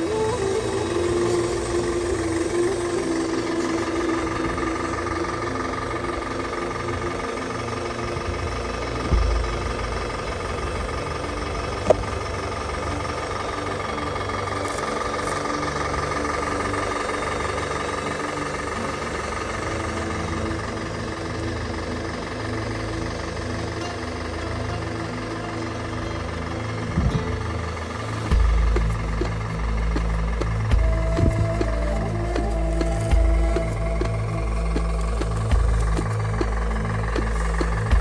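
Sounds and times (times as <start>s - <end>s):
diesel-like engine running: 0.0s - 38.0s
low thump: 9.1s - 9.7s.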